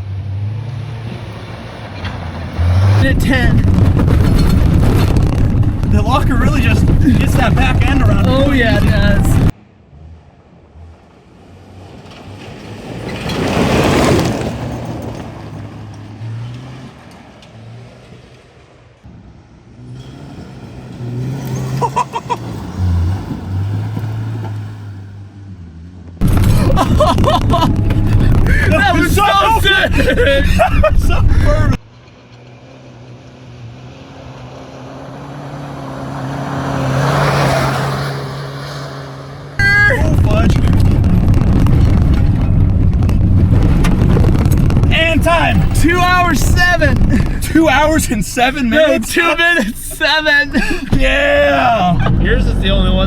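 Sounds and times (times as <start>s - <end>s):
tyres rushing over dirt: 1.7s - 9.5s, 11.8s - 17.4s, 26.2s - 31.8s, 34.8s - 53.0s
truck engine running: 2.6s - 9.5s, 25.1s - 31.8s, 34.9s - 53.0s.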